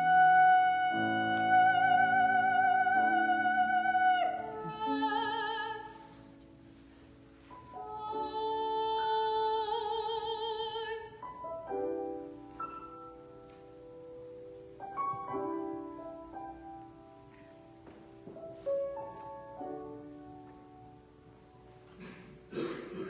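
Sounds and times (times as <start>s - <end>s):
woman singing classical song: 0.0s - 6.4s, 7.4s - 11.5s
piano accompaniment: 0.0s - 23.0s.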